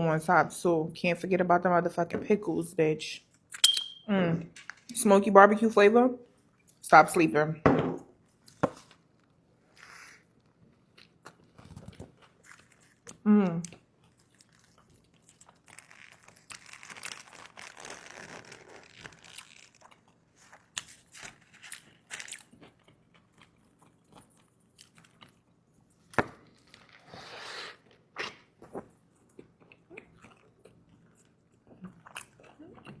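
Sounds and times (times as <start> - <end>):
chewing: 9.8 - 17.0, 21.6 - 25.5, 28.2 - 33.0
crunchy food bites: 14.0 - 23.4.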